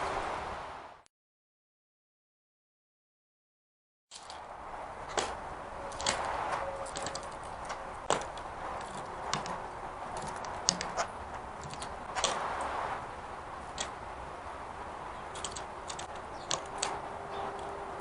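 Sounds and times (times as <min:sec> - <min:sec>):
bird clicking and tapping peanuts: 0:05.1 - 0:12.4, 0:15.2 - 0:17.0.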